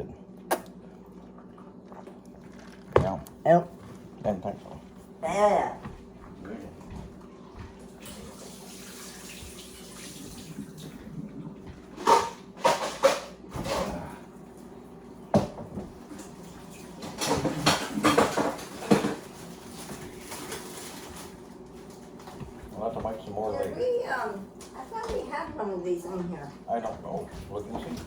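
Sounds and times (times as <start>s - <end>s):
steady low hum: 0.0s - 28.0s
dishes clattering: 12.0s - 14.0s, 17.0s - 21.3s.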